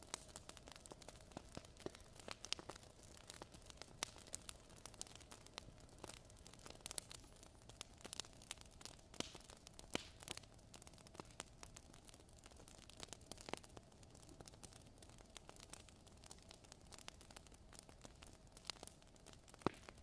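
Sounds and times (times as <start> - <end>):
soft steady hiss: 0.0 - 20.0
wood fire crackling: 0.0 - 20.0
sharp pops and snaps: 0.1 - 5.3, 9.2 - 10.4, 18.8 - 20.0.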